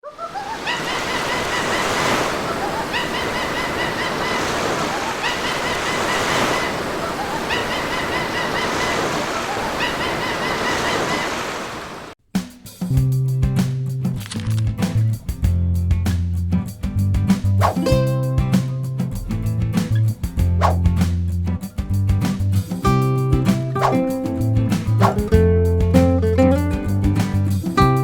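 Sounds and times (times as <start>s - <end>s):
ocean waves washing in: 0.0s - 12.2s.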